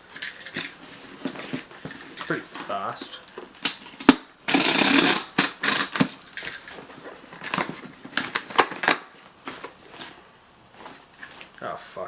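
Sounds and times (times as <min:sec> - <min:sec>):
cardboard clicks and scrapes: 0:03.5 - 0:10.2
cardboard cutting and tearing: 0:03.6 - 0:10.1.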